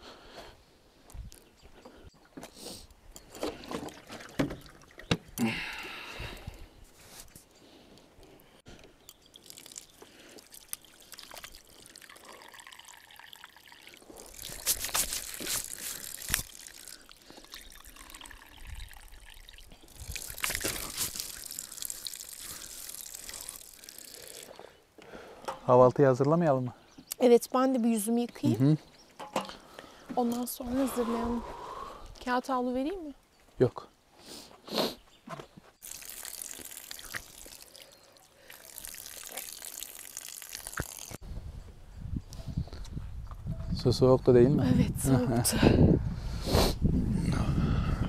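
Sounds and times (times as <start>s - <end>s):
water trickling and splashing: 3.4s - 6.6s, 9.0s - 24.7s, 35.8s - 41.2s.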